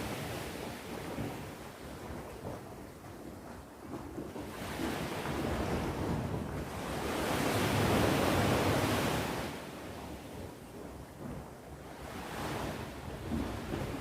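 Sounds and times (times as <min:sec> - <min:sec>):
surf washing on shore: 0:00.0 - 0:02.7, 0:04.0 - 0:14.0.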